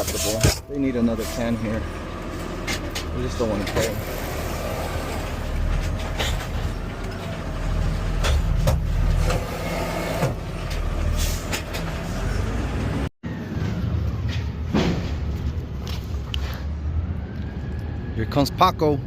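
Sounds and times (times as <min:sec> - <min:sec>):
sharp knocks and clanks: 0:14.3 - 0:15.4.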